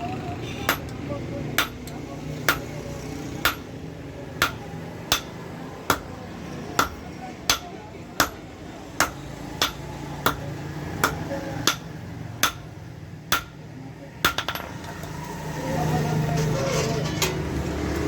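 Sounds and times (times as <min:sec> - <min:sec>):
background din and voices: 0:00.0 - 0:18.0
hammer striking metal: 0:01.6 - 0:02.7, 0:03.4 - 0:03.7, 0:04.4 - 0:06.1, 0:06.8 - 0:08.4, 0:09.0 - 0:10.4, 0:11.0 - 0:12.7, 0:13.3 - 0:13.6.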